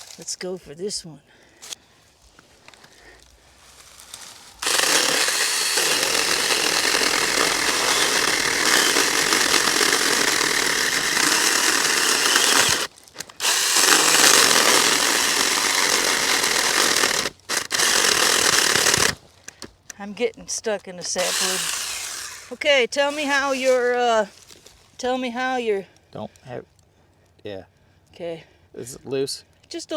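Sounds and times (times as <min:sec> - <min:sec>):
electric chainsaw cutting wood: 0:04.6 - 0:19.7, 0:21.0 - 0:24.0.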